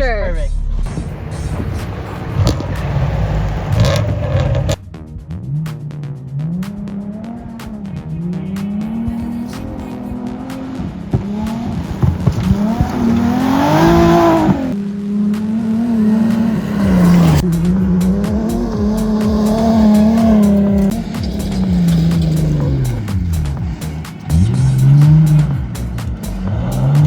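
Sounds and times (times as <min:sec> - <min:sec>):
car engine revving: 0:00.5 - 0:27.0
tyres sliding on gravel: 0:01.2 - 0:04.8, 0:11.2 - 0:14.8.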